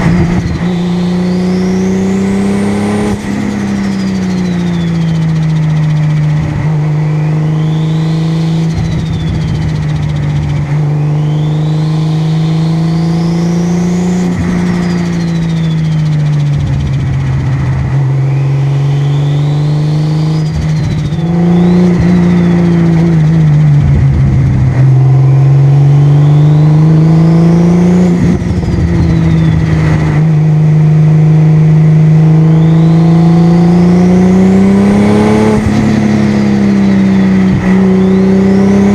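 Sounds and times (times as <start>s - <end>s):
car engine cruising: 0.0s - 38.9s
high whistle: 3.5s - 5.7s, 7.1s - 10.2s, 10.8s - 16.2s, 18.2s - 23.1s, 25.2s - 26.9s, 28.4s - 29.7s, 32.4s - 33.7s, 34.9s - 38.6s.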